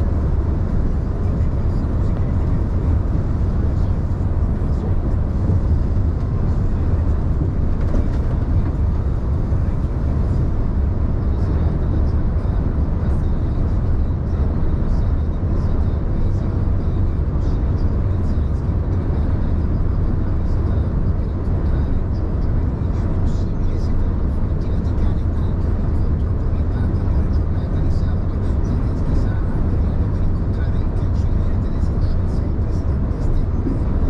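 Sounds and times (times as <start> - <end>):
heavy vehicle engine rumbling: 0.0 - 34.0.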